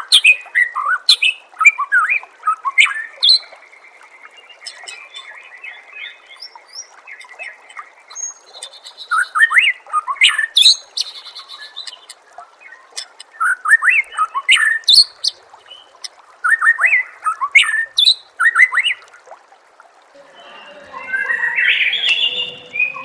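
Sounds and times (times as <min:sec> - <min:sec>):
bird singing whistled sweeps: 0:20.4 - 0:23.0.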